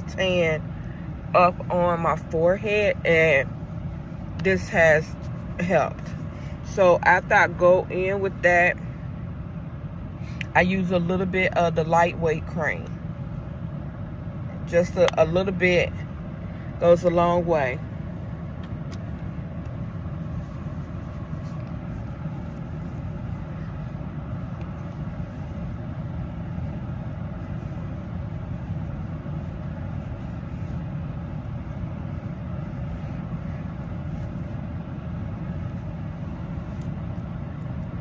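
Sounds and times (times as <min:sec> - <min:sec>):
low vehicle rumble: 0:00.0 - 0:38.0.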